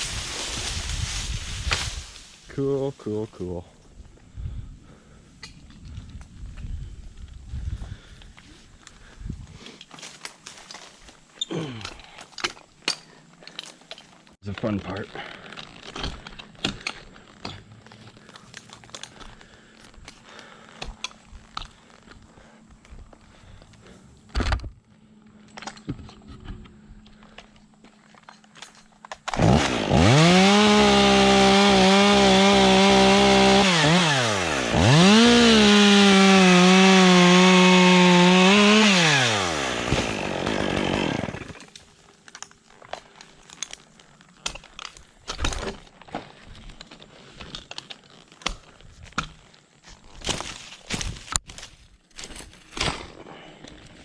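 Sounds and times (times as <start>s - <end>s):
chainsaw cutting wood: 29.2s - 42.0s.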